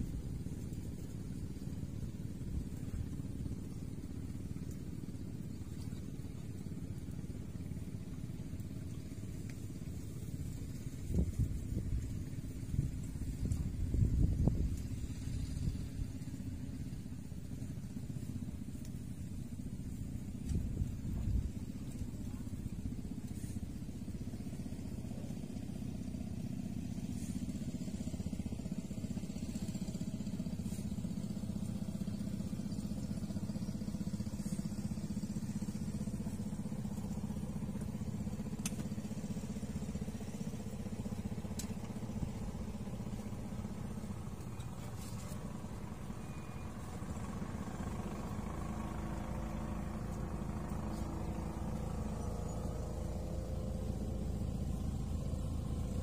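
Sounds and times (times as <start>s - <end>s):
small boat engine droning: 0.0s - 56.0s
faint sharp ticks: 38.5s - 39.0s.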